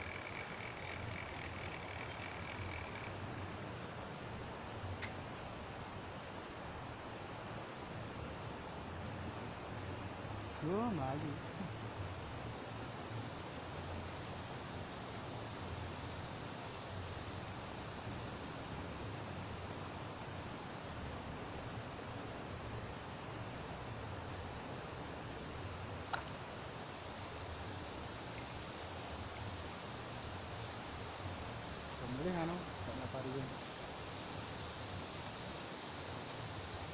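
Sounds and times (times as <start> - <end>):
insects trilling: 0.0 - 36.9
sharp click: 5.0 - 5.2, 26.1 - 26.4.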